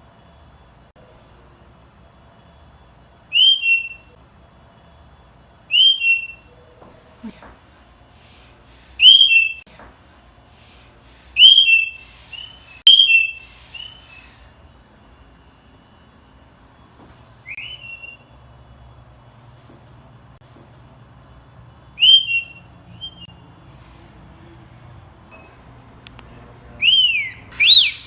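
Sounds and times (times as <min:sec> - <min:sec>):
parrot whistled calls: 0:03.3 - 0:04.1, 0:05.7 - 0:06.5, 0:09.0 - 0:09.6, 0:11.4 - 0:14.4, 0:17.4 - 0:18.2, 0:22.0 - 0:23.3, 0:26.8 - 0:28.0.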